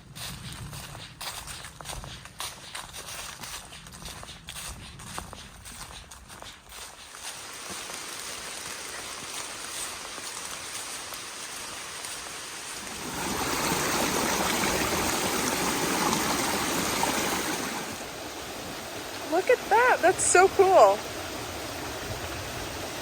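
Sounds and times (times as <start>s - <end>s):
rushing water of a stream: 6.7s - 23.0s.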